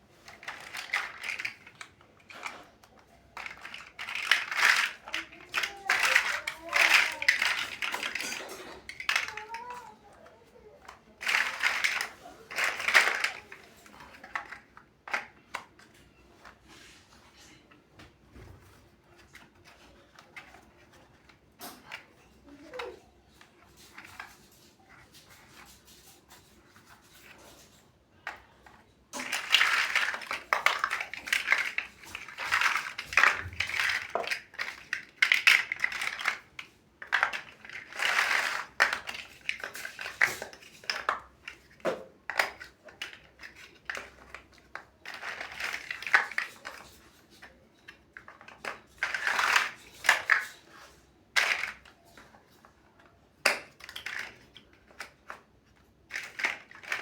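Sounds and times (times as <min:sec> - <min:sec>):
loose bricks rattling: 0:00.1 - 0:10.0, 0:29.1 - 0:52.2
plastic bricks clicking: 0:00.2 - 0:16.0, 0:23.7 - 0:57.0.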